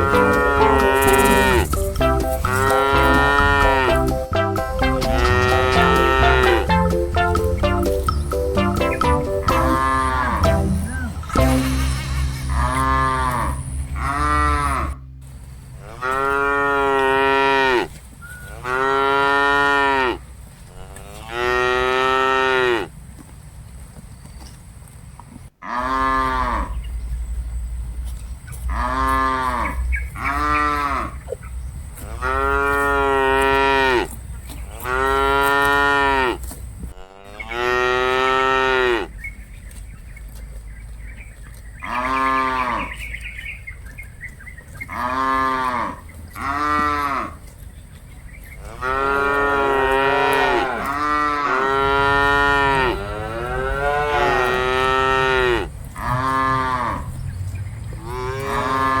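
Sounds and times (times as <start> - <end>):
cattle mooing: 0.0 - 4.2, 4.8 - 7.6, 9.4 - 11.4, 12.5 - 22.9, 25.6 - 26.8, 28.7 - 31.2, 32.0 - 39.2, 41.8 - 43.0, 44.9 - 47.4, 48.6 - 57.1, 58.0 - 59.0.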